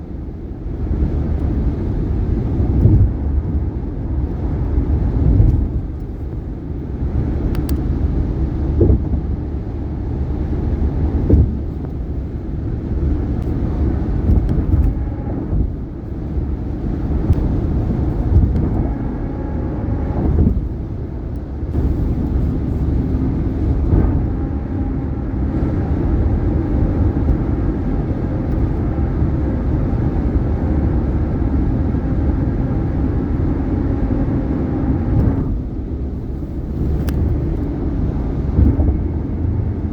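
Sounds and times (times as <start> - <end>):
tyre road rumble: 0.0 - 39.9.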